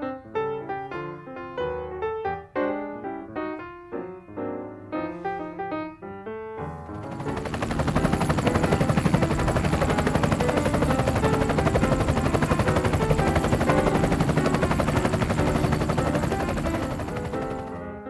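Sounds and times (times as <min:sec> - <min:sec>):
helicopter rotor chopping: 0:07.0 - 0:17.8.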